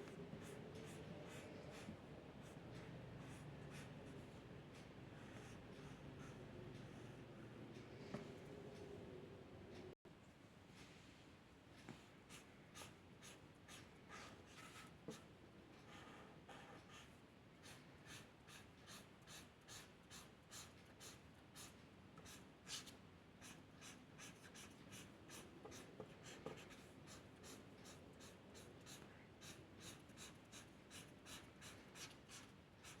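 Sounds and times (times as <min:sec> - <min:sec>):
drawing tool scratching on paper: 0:16.0 - 0:33.0.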